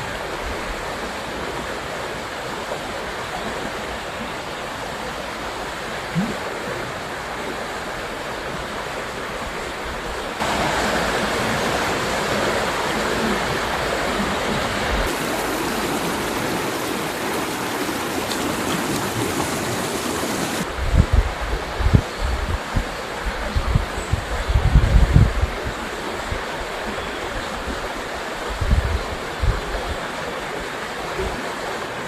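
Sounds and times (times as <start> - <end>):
river rushing over rocks: 0.0 - 21.8
wind bumps on microphone: 10.4 - 26.4, 27.7 - 30.1.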